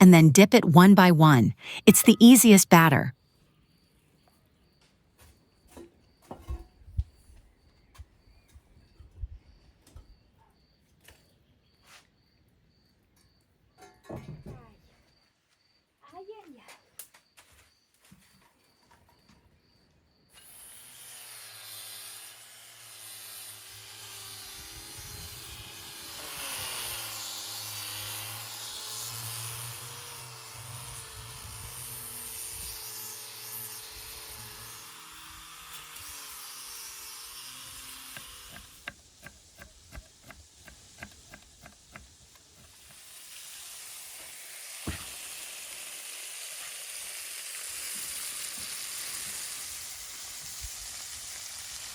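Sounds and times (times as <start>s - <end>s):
steady cooking hiss: 26.3s - 51.9s.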